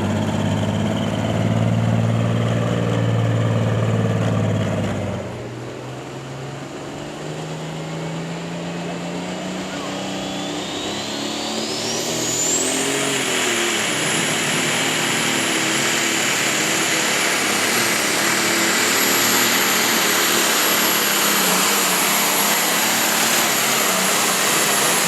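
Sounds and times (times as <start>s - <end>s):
tractor engine at full power: 0.0s - 25.0s
high whine: 6.6s - 25.0s.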